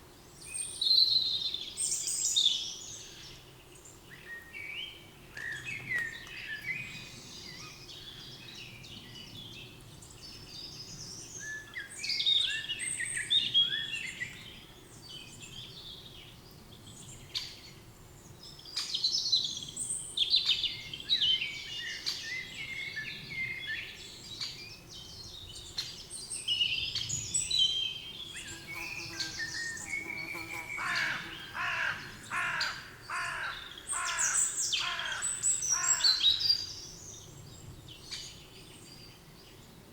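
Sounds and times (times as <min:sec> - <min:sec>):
songbirds singing and chirping: 0:00.0 - 0:39.9
harsh bird call: 0:28.5 - 0:36.1.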